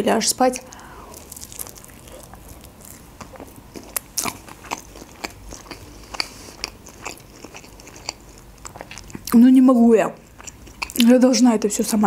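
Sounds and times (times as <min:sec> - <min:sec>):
person chewing food: 0:00.6 - 0:09.4, 0:10.2 - 0:12.0.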